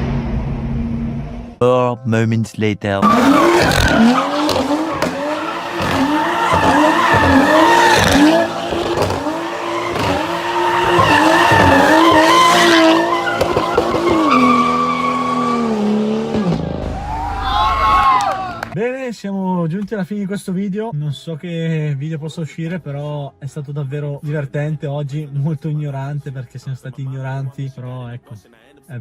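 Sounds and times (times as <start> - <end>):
car engine revving: 3.0 - 18.8.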